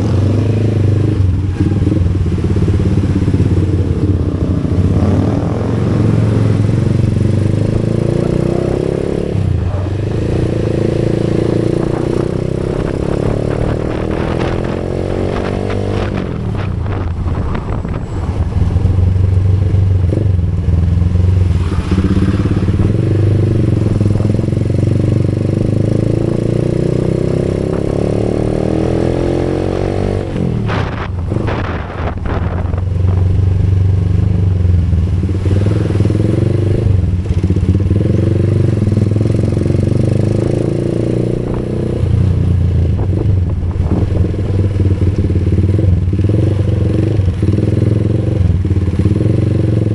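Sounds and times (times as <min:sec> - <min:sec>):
rush of noise: 0:00.0 - 0:25.0, 0:28.5 - 0:37.6
motorcycle engine running: 0:00.0 - 0:49.9.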